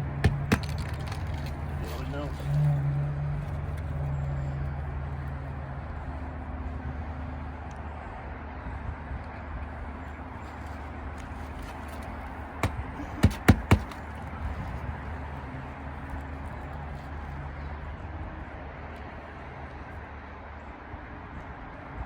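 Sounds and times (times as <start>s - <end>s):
hammer knocks driving nails: 0.2s - 1.6s, 12.6s - 14.0s.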